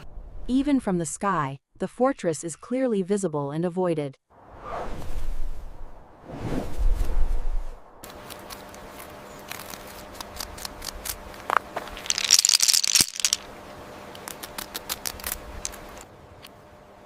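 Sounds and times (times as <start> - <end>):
low whoosh: 4.4 - 8.0
porcupine quills clicking: 8.0 - 13.5, 14.1 - 16.6.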